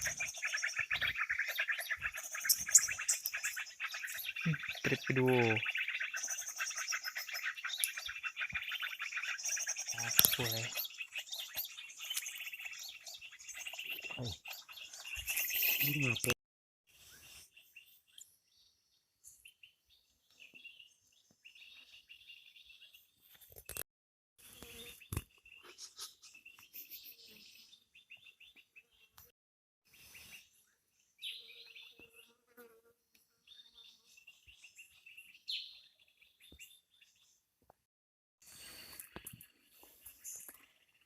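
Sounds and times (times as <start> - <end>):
forest bird calls: 0.0 - 16.4, 29.9 - 32.4, 33.5 - 37.4.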